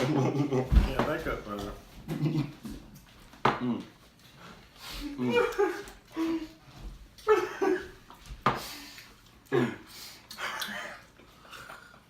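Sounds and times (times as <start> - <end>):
people coughing: 7.2 - 8.0.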